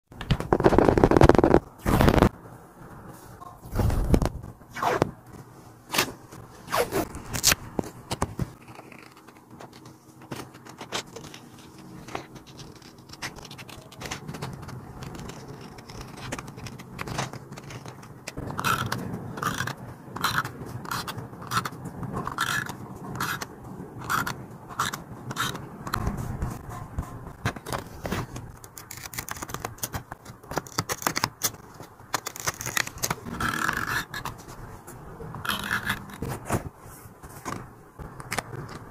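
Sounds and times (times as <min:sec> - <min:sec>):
paper rustling: 0:03.2 - 0:22.8, 0:25.5 - 0:38.9.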